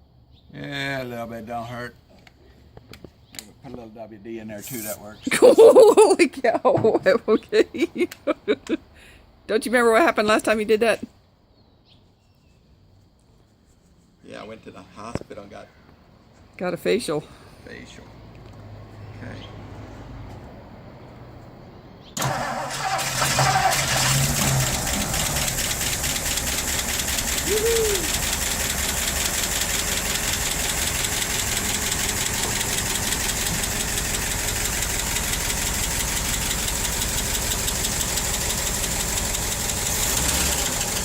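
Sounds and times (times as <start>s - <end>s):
car engine starting and running: 22.0s - 41.0s.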